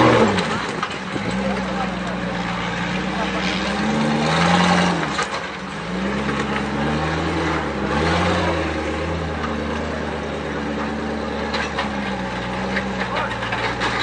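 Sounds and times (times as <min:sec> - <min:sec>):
off-road buggy engine revving: 0:00.0 - 0:14.0.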